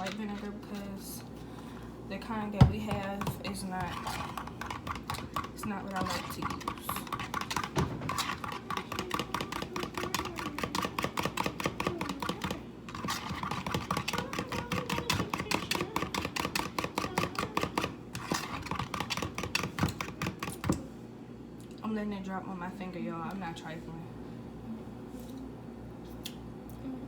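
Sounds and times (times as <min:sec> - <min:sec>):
whisk clicking against bowl: 0:02.8 - 0:20.8.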